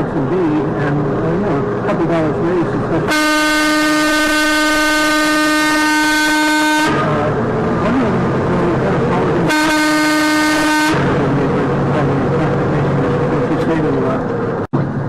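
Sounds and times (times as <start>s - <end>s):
road noise: 0.0s - 15.0s
vehicle horn blasts: 3.1s - 7.3s, 9.4s - 11.2s.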